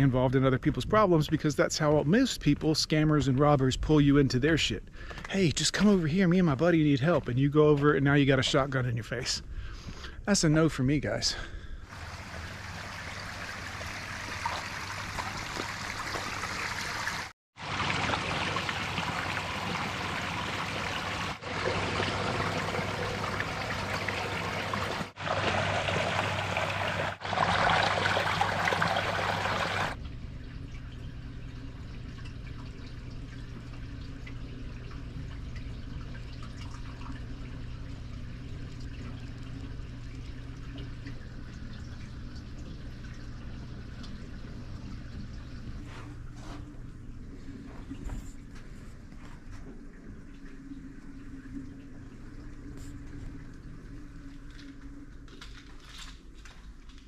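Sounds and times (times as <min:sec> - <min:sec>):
water rushing: 0:11.9 - 0:30.0
steady low hum: 0:28.3 - 0:57.0.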